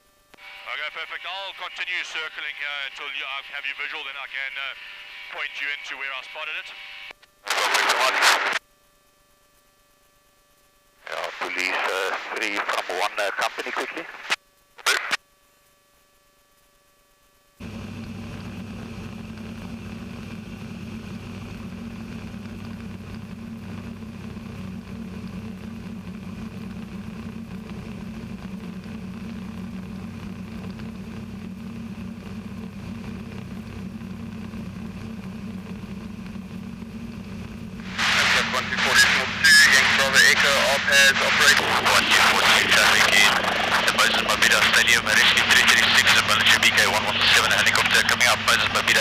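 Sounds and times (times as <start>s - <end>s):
light aircraft engine drone: 0.0s - 49.0s
radio clicks: 11.1s - 15.2s, 37.8s - 49.0s.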